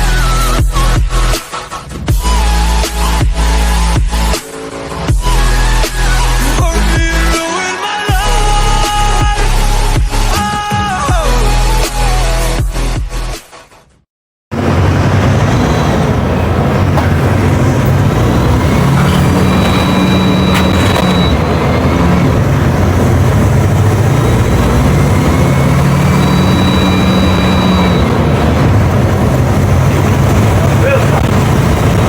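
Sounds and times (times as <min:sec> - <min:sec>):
bus diesel engine running: 0:14.5 - 0:32.0
thin high whine: 0:18.9 - 0:21.8, 0:25.6 - 0:28.4.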